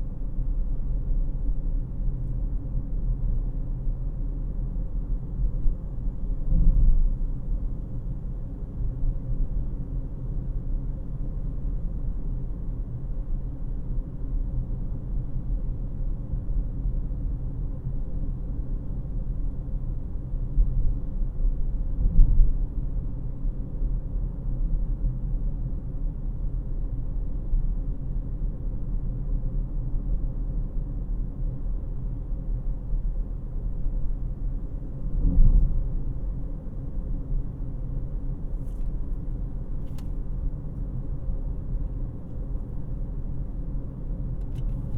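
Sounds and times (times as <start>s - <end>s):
car engine rumble: 31.0s - 44.9s.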